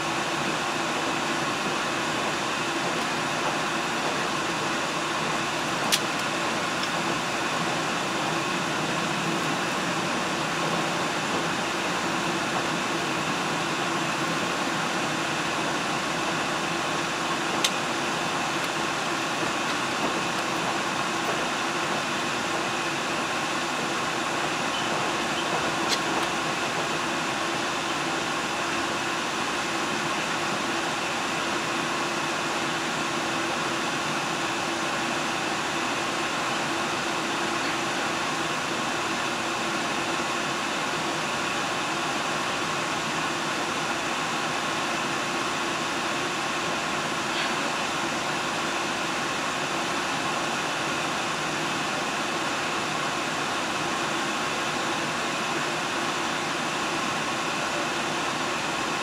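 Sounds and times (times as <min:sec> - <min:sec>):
diesel train hum and rush: 0:00.0 - 0:59.0.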